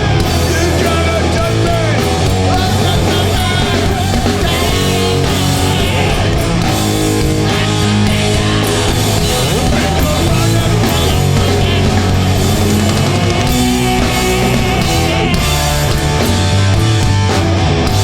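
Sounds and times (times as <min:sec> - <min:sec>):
punk band playing: 0:00.0 - 0:18.0.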